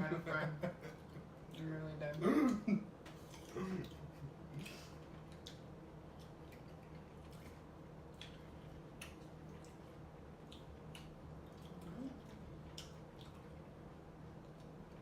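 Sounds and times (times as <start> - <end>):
low steady hum: 0.0 - 15.0
person chewing fruit: 3.1 - 15.0.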